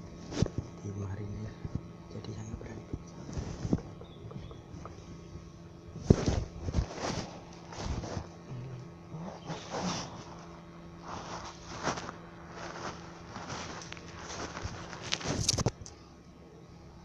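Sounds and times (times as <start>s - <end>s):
faint steady hum: 0.0s - 17.0s
handling knocks and rustles: 0.2s - 0.8s, 2.9s - 5.1s, 5.9s - 8.4s, 9.4s - 15.9s.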